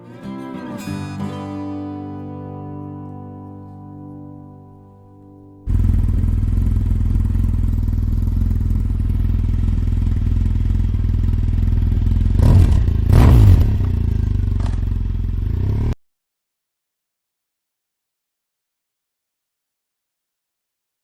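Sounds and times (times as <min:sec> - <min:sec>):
motorcycle engine running: 0:05.7 - 0:16.0.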